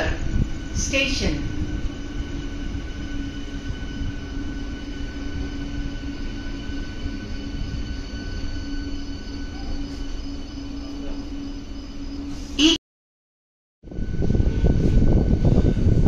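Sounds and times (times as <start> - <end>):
faint high whining tones: 0.0 - 12.8.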